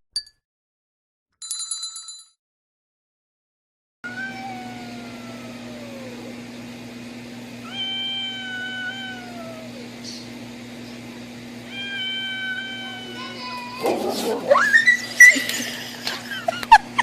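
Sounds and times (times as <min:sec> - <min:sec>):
cat meowing: 0:04.1 - 0:06.4, 0:07.6 - 0:10.0, 0:11.7 - 0:15.4.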